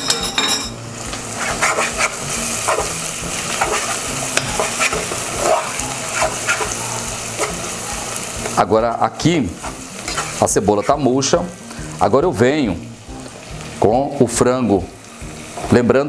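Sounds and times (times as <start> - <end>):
onion sizzling in a pan: 0.0 - 16.0
utensil scraping and tapping pan: 3.6 - 6.8.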